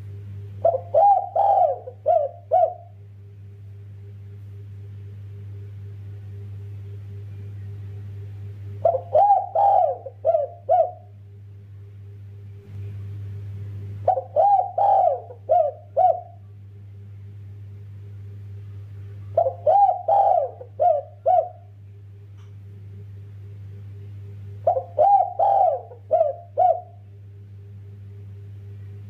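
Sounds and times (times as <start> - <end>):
steady low hum: 0.0 - 29.0
dove cooing: 0.6 - 3.0, 8.8 - 11.2, 14.0 - 16.5, 19.3 - 21.8, 24.6 - 27.0.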